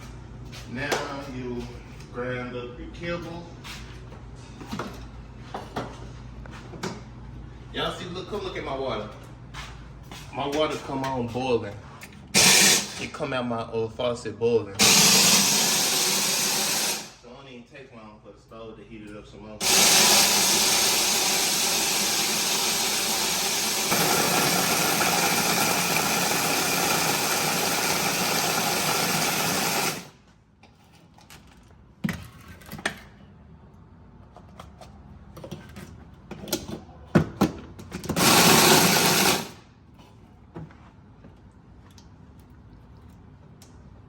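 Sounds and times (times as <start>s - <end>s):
electric grinder grinding kibble: 14.8s - 17.2s, 19.6s - 30.2s, 38.2s - 39.6s.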